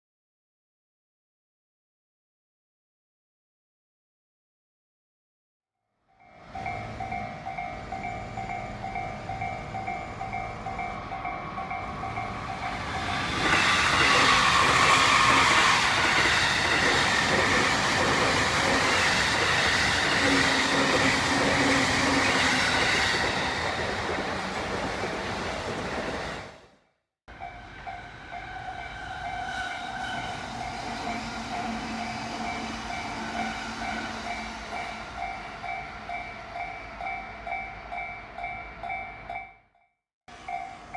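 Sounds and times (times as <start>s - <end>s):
crossing alarm bell ringing: 6.2s - 23.6s, 27.3s - 39.7s, 40.3s - 40.9s
electric train passing: 6.2s - 39.5s, 40.3s - 40.9s.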